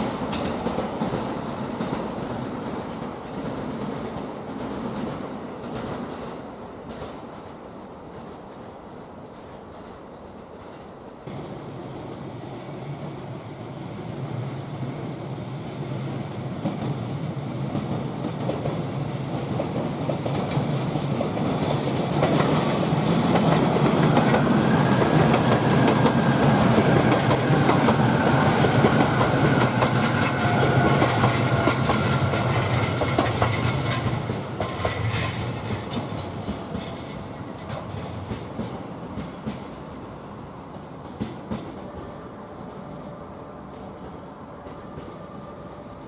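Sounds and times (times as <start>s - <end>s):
train high whine: 11.2s - 46.0s
train wheels clattering over rails: 16.1s - 40.0s, 41.0s - 42.2s.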